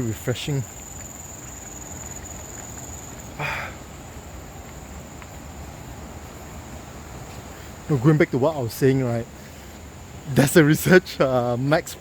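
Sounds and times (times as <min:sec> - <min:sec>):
faint higher insect trill: 0:00.0 - 0:06.8
insects trilling: 0:00.0 - 0:06.8.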